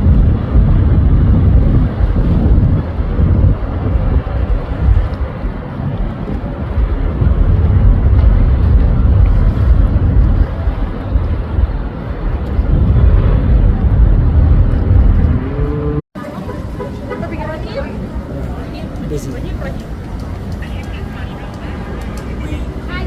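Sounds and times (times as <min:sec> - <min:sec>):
wind on microphone: 0:00.0 - 0:16.0
boat engine: 0:00.0 - 0:23.0
water noise: 0:00.0 - 0:23.0.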